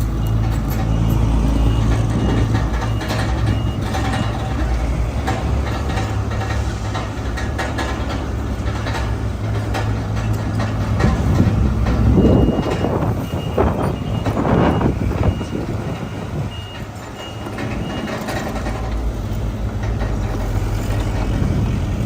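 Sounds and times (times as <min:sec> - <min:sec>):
reversing alarm beeping: 0:00.0 - 0:05.8, 0:11.0 - 0:18.9
metal clanks: 0:00.0 - 0:21.8
heavy diesel engines running: 0:00.0 - 0:22.0.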